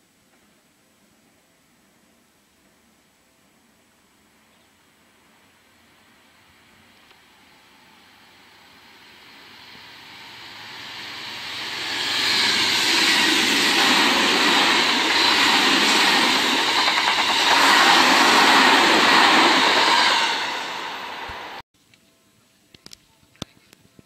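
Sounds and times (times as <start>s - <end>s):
electric train passing: 5.9s - 21.6s.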